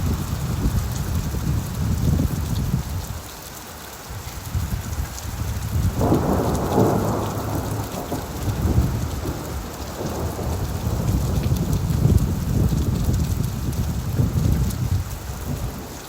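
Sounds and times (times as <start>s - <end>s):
rain falling on leaves: 0.0s - 16.0s
thunder rumbling: 4.5s - 16.0s.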